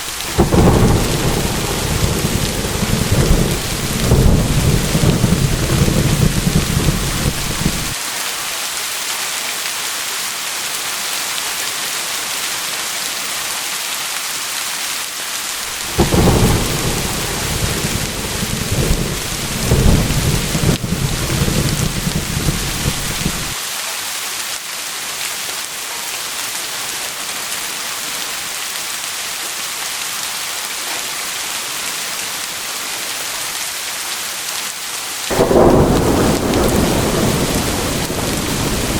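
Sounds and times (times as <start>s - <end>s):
thunder rumbling: 0.0s - 8.0s, 15.6s - 23.6s, 35.3s - 38.9s
heavy rain hiss: 0.0s - 38.9s.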